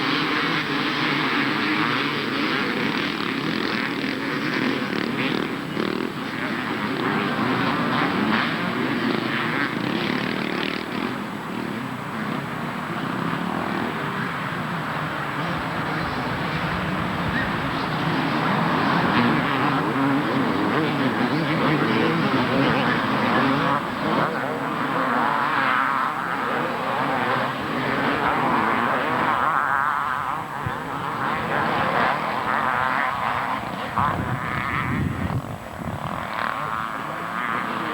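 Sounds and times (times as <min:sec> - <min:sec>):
motocross bikes revving: 0:00.0 - 0:37.9.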